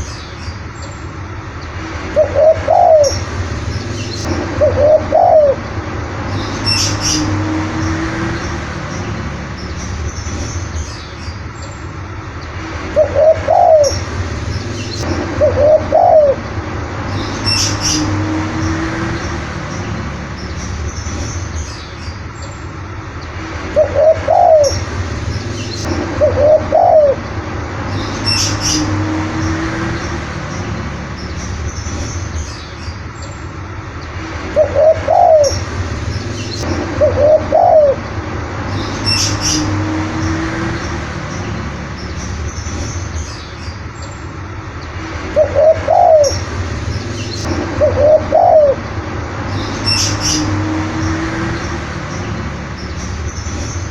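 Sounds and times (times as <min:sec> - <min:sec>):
dove cooing: 0:02.2 - 0:03.2, 0:04.5 - 0:05.6, 0:13.0 - 0:14.0, 0:15.4 - 0:16.4, 0:23.8 - 0:24.8, 0:26.2 - 0:27.2, 0:34.6 - 0:35.6, 0:37.0 - 0:38.0, 0:45.4 - 0:46.4, 0:47.8 - 0:48.8.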